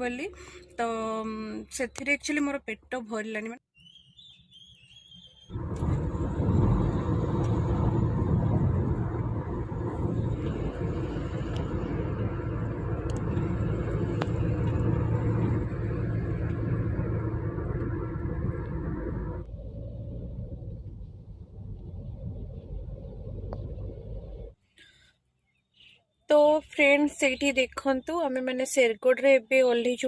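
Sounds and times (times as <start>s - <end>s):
car engine and road rumble: 5.2s - 24.7s.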